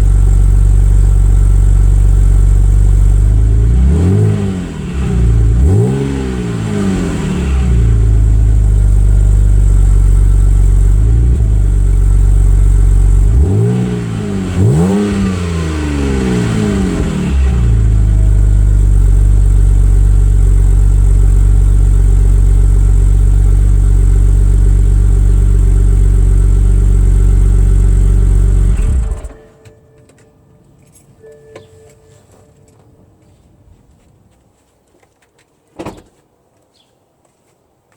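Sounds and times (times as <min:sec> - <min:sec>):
car engine revving and idling: 0:00.0 - 0:29.8
car engine switched off: 0:00.0 - 0:31.6.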